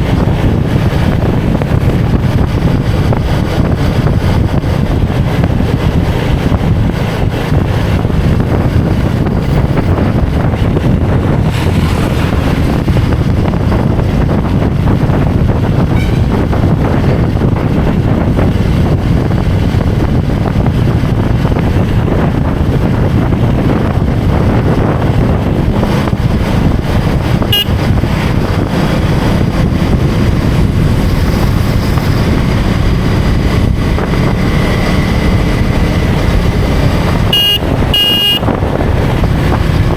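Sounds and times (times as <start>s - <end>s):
road and wind noise: 0.0s - 39.9s
vehicle engine running: 0.0s - 39.9s.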